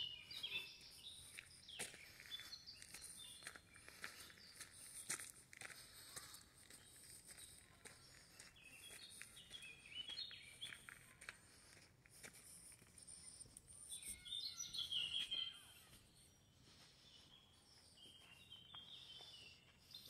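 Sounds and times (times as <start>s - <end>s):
bird chirping: 0.0s - 5.3s, 6.8s - 11.2s, 12.4s - 20.0s.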